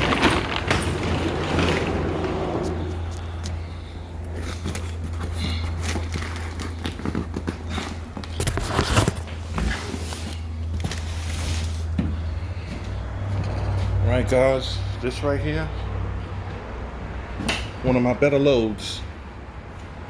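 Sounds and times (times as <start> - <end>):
cargo straps knocking and scraping: 0.0 - 12.8.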